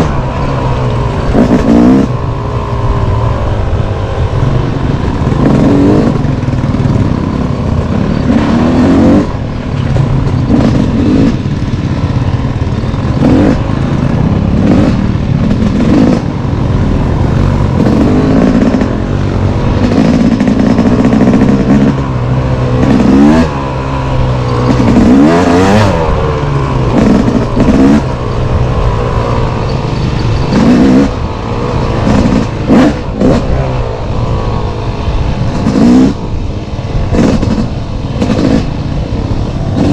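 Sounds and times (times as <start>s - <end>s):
single-cylinder engine revving: 0.0s - 39.9s
sharp knocks and clatter: 37.1s - 38.7s.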